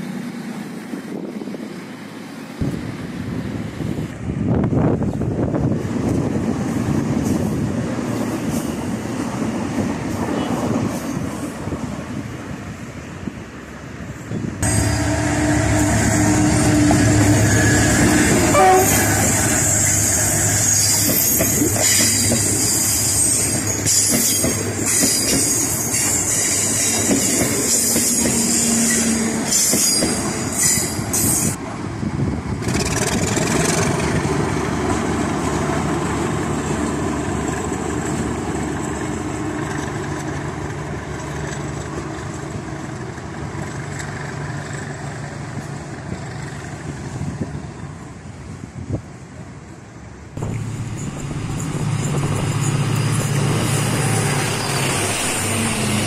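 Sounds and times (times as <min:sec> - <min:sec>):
steady train rumble: 0:00.0 - 0:56.0
diesel locomotive horn: 0:14.6 - 0:23.7.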